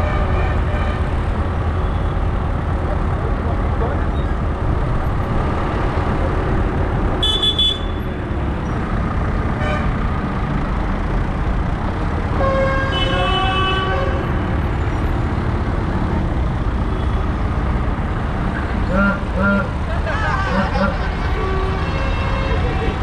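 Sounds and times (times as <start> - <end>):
tractor engines rumbling: 0.0 - 23.0
horn toots: 7.2 - 8.0, 18.9 - 23.0.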